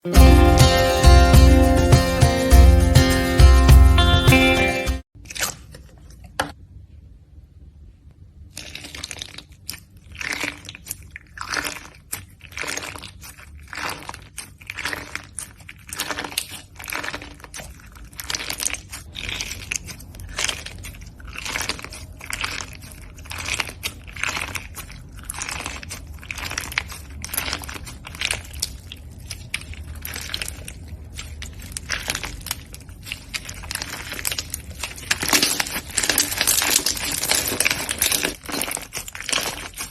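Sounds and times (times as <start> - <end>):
slime crackling when squeezed: 8.4 - 39.9.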